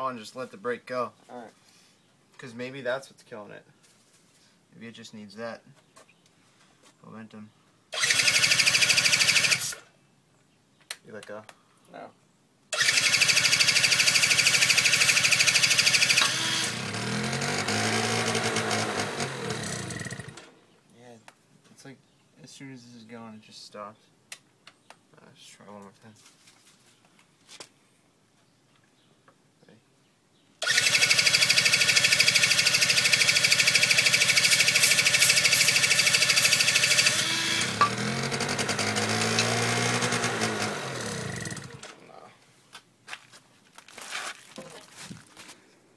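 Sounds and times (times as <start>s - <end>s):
electric starter cranking: 7.9s - 9.8s, 12.7s - 20.6s, 30.6s - 42.0s
two-stroke scooter engine running: 12.8s - 20.5s, 30.6s - 42.0s.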